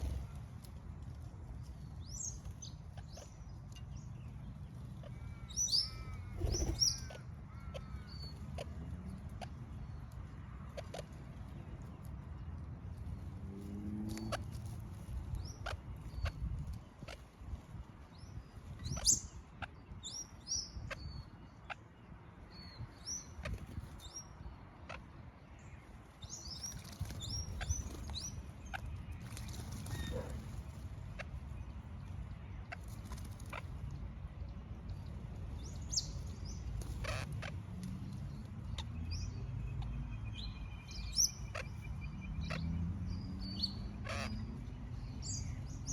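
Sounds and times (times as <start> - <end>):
parrots chirping: 29.7 - 30.8.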